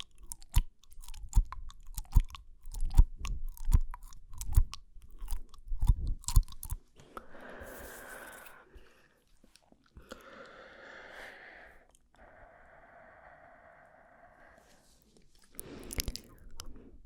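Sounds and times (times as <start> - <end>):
lip smacks and tongue clicks: 0.0 - 7.3, 15.3 - 16.9
breathy hiss: 7.2 - 9.2, 10.1 - 15.0.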